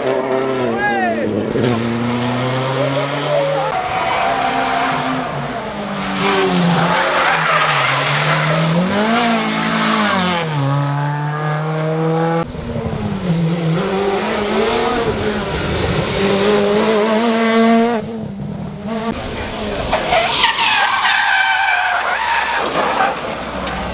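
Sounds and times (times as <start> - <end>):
car accelerating: 0.0 - 23.9
rally car engines revving: 0.0 - 23.9
tyres skidding and squealing: 0.2 - 11.5, 19.1 - 23.9.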